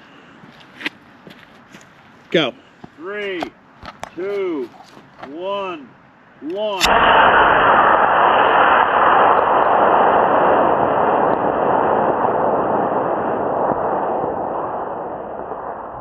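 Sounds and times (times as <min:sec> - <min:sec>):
rocket motor roaring: 0:06.8 - 0:16.0.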